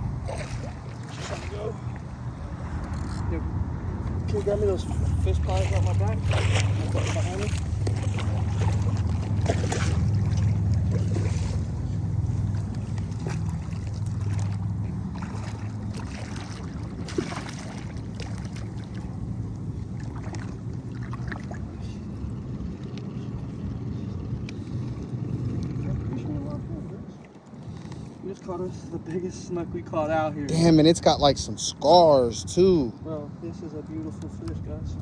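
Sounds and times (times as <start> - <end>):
boat engine idling: 0.0 - 26.9.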